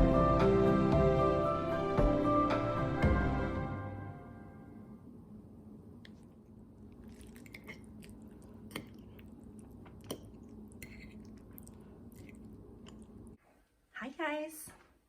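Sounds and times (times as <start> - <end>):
low steady hum: 3.7 - 13.4.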